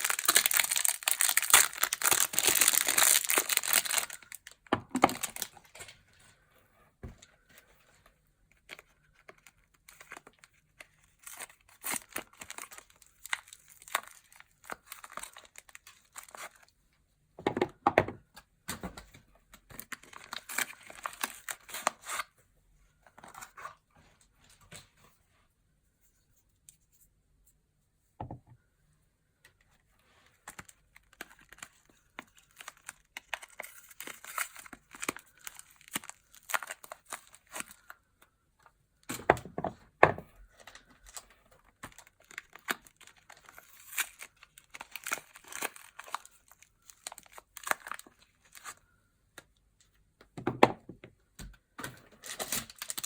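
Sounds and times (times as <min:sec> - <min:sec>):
wrappers tearing and crinkling: 0:00.0 - 0:05.8, 0:11.1 - 0:16.6, 0:19.8 - 0:22.2, 0:30.5 - 0:38.0, 0:40.6 - 0:48.8, 0:52.2 - 0:53.0.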